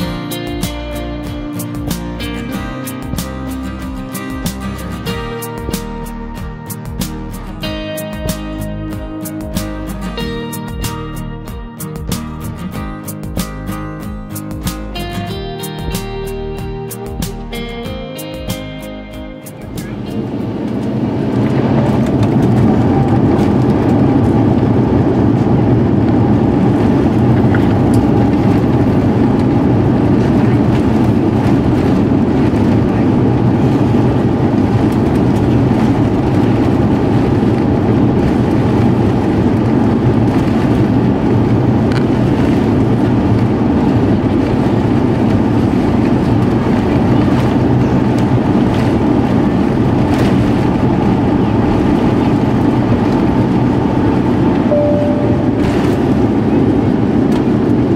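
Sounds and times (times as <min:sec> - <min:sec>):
airliner cabin engine rumble: 0:00.0 - 0:57.9.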